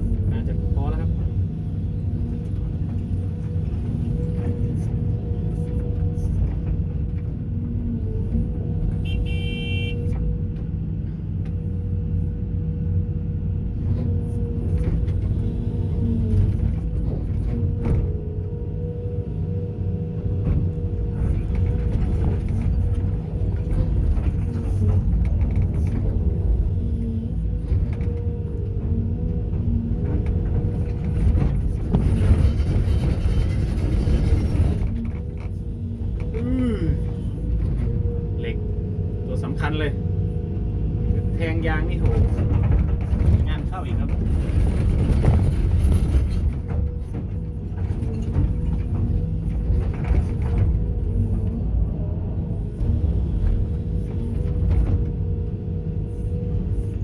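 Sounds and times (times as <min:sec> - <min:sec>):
heavy diesel engine running: 0:00.0 - 0:57.0
short horn toot: 0:09.0 - 0:10.1
scraping and clatter: 0:29.5 - 0:36.4, 0:41.4 - 0:51.6.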